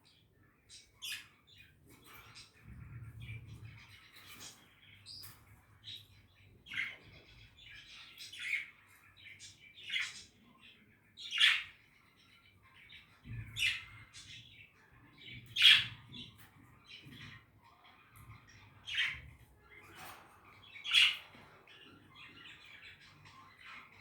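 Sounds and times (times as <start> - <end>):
budgies chirping and squawking: 0.0 - 24.0.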